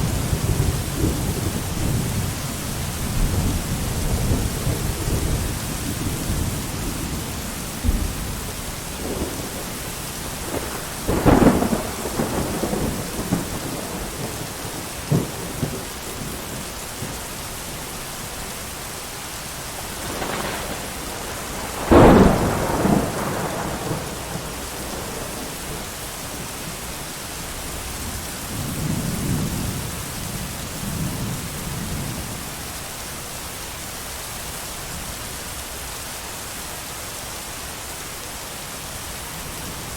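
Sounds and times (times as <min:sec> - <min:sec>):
thunder cracks and rumbles: 0:00.0 - 0:17.2, 0:19.8 - 0:26.6
heavy rain: 0:00.0 - 0:39.9.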